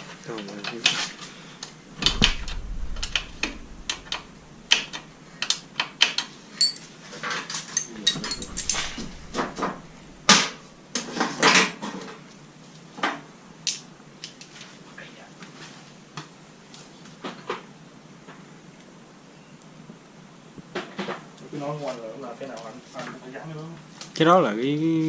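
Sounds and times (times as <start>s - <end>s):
metal tools clinking: 6.6s - 6.9s, 7.8s - 9.7s
loud metal clanks: 7.9s - 10.8s.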